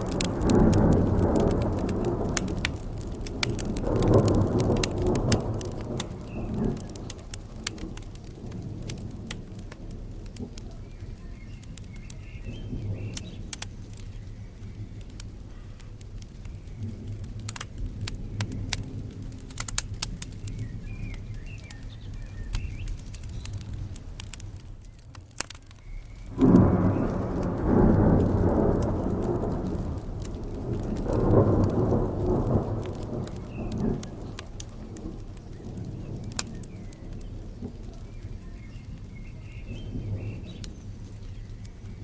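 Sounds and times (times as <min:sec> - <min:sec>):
thunderclap rolling: 0:00.0 - 0:15.5, 0:26.1 - 0:42.0
steady rain: 0:00.0 - 0:42.0
wood fire crackling: 0:00.0 - 0:42.0.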